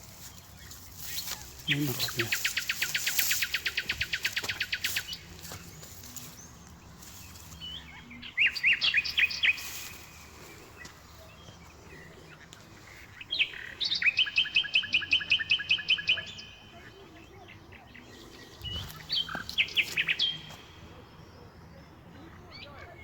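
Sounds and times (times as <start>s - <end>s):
small songbird chirping: 0.0s - 23.0s.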